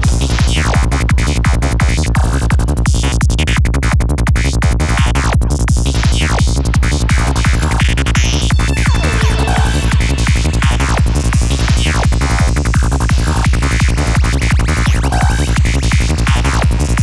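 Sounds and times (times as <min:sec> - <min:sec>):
trance dance music: 0:08.5 - 0:15.5.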